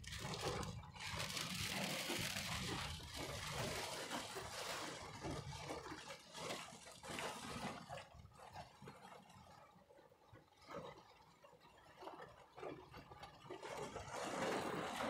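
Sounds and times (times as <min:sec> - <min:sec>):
heavy rain on a car: 0:00.1 - 0:04.2.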